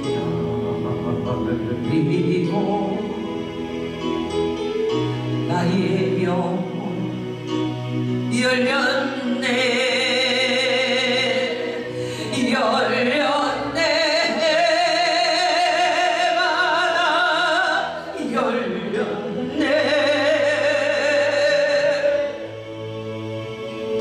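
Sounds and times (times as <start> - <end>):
instrumental accompaniment: 0.0 - 24.0
woman singing with vibrato: 1.8 - 3.4, 8.3 - 22.4.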